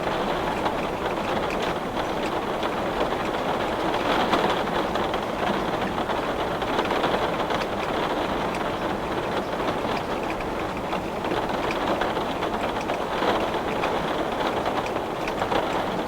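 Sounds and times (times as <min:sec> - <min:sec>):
heavy rain on window glass: 0:00.0 - 0:16.0.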